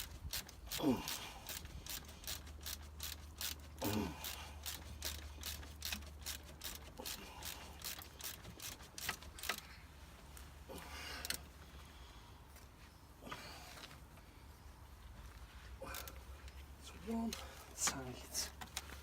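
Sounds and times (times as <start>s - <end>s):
socket ratchet clicking: 1.1s - 3.6s, 4.2s - 9.6s.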